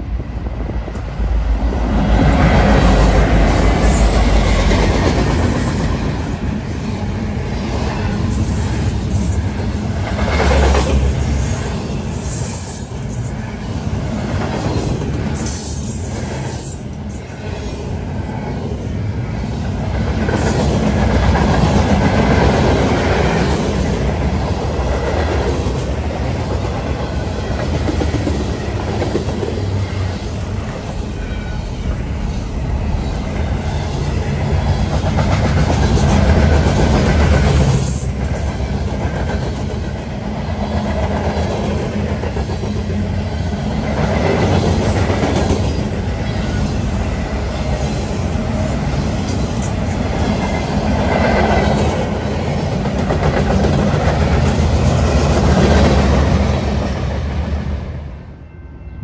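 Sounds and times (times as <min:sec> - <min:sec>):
train wheels rumbling on rails: 0:00.0 - 0:58.4
clickety-clack of wheels: 0:34.8 - 0:46.8, 0:47.7 - 0:56.6.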